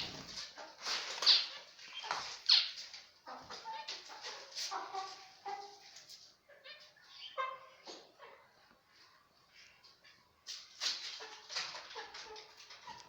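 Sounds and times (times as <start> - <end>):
finches chirping: 0.0 - 0.4.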